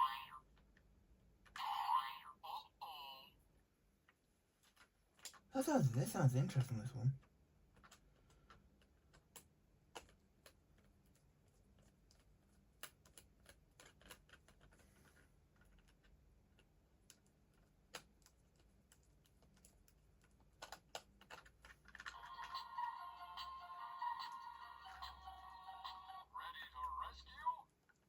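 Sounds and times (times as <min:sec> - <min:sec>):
plastic toy train clicks: 0:19.3 - 0:22.7.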